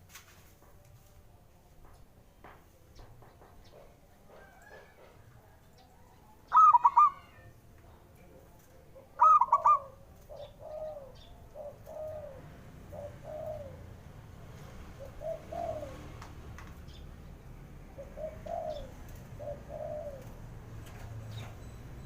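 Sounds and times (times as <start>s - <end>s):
dove cooing: 6.5s - 7.4s, 9.0s - 16.3s, 17.8s - 22.0s.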